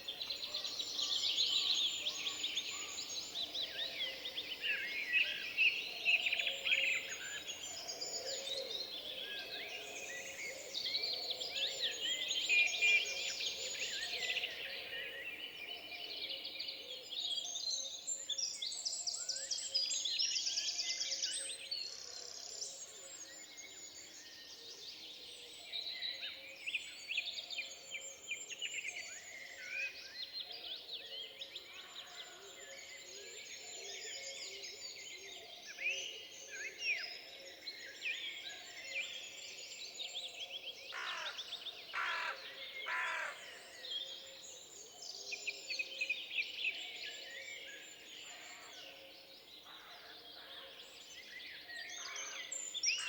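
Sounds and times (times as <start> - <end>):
songbirds singing and chirping: 0.0 - 53.0.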